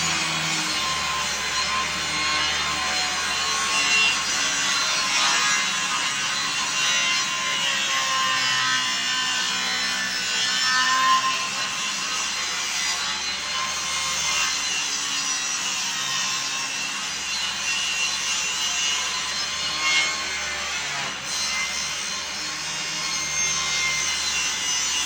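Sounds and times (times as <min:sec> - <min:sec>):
power saw cutting wood: 0:00.0 - 0:25.0.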